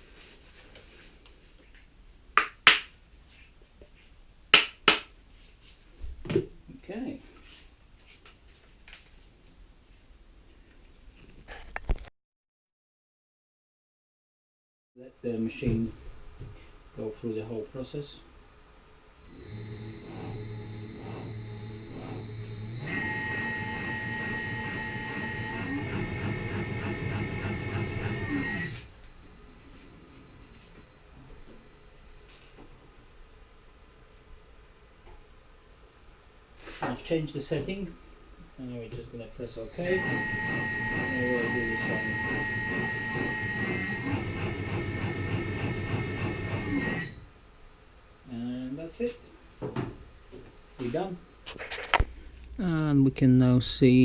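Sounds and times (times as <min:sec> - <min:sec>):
machine high whine: 0:15.0 - 0:35.3, 0:39.1 - 0:54.0
shock dyno rhythmic strokes: 0:15.2 - 0:35.1, 0:39.2 - 0:52.8.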